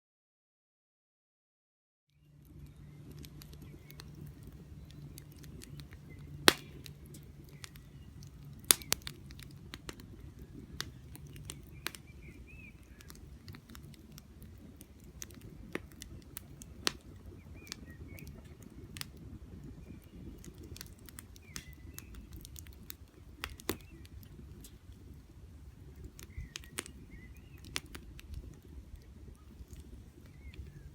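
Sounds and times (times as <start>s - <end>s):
campfire crackling and popping: 2.2s - 30.9s
low steady rumble: 2.2s - 30.9s
faint bird chirps: 26.2s - 27.8s.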